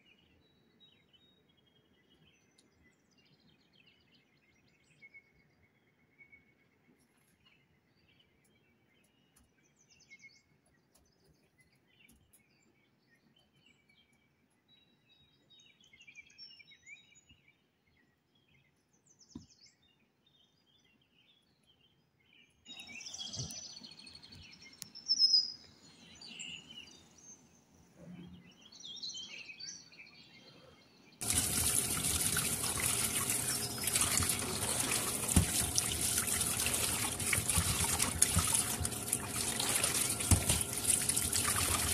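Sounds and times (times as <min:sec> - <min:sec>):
hands rubbing salt onto fish: 0:31.2 - 0:41.9
tap water running into steel bowl: 0:31.2 - 0:41.9.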